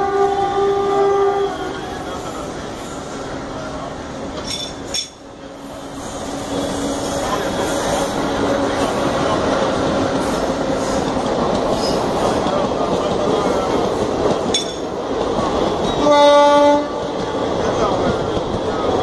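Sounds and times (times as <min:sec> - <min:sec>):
train horn: 0:00.0 - 0:02.0, 0:15.9 - 0:17.2
train wheels rumbling on rail: 0:00.0 - 0:19.0.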